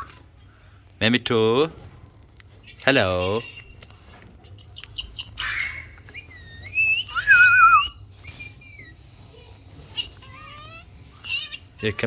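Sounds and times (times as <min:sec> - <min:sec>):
parrot whistling and chirping: 0:05.4 - 0:09.0.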